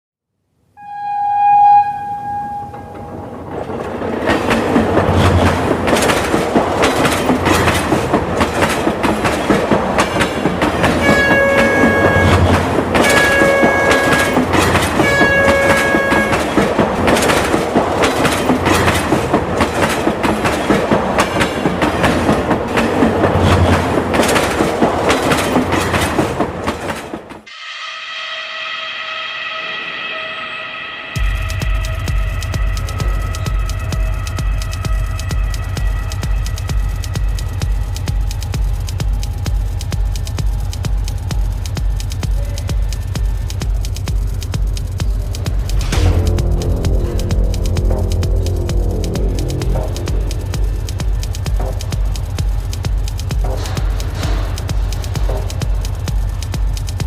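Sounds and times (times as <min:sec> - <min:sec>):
train horn blasts: 0:00.8 - 0:03.3, 0:10.8 - 0:17.6, 0:27.5 - 0:37.8, 0:45.8 - 0:52.2
train wheels clattering: 0:02.7 - 0:27.5, 0:31.2 - 0:57.0.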